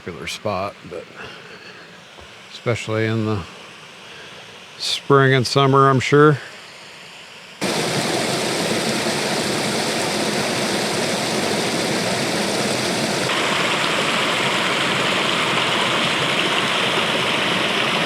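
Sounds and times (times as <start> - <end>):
water rushing over waterfall: 7.6 - 18.0.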